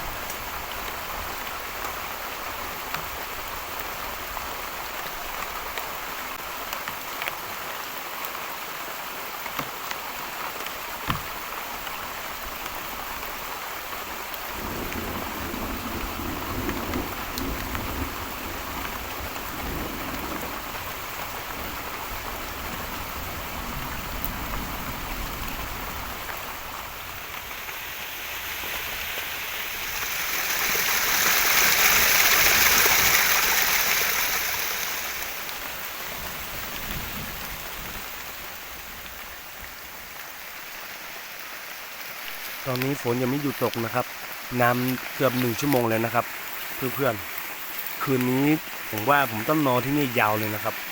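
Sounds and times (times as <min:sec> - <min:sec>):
heavy rain falling: 0:00.0 - 0:50.9
raindrops hitting close by: 0:00.0 - 0:50.9
thunder rumbling: 0:14.5 - 0:26.2.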